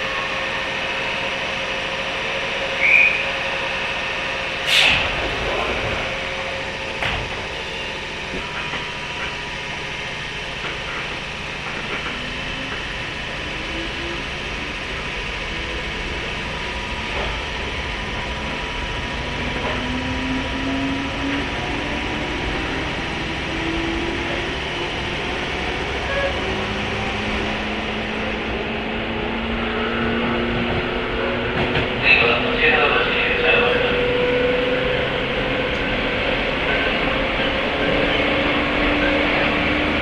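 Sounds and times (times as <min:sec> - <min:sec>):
electric train motor whine: 0:00.0 - 0:29.0
train rolling roar: 0:00.0 - 0:40.0.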